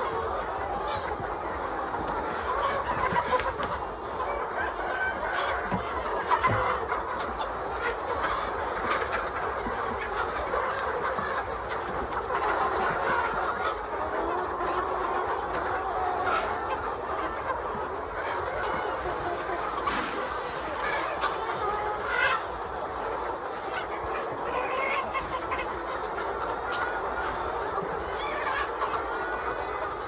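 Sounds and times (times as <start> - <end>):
hens clucking and calling: 0.0 - 30.0.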